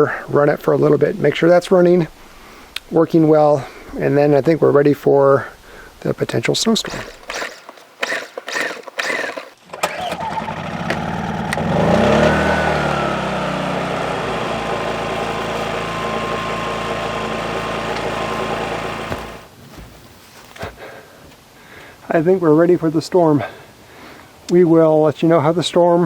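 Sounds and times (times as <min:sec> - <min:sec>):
portable generator engine running: 0:07.0 - 0:19.5.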